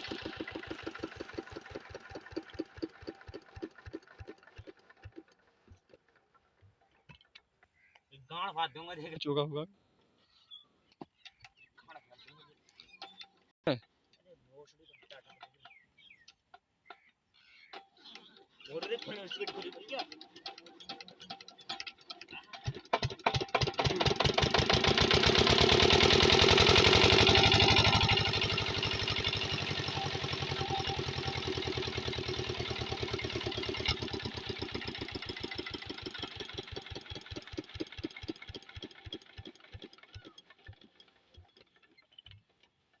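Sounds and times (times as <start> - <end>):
single-cylinder diesel engine: 0.0 - 6.0, 18.8 - 41.9.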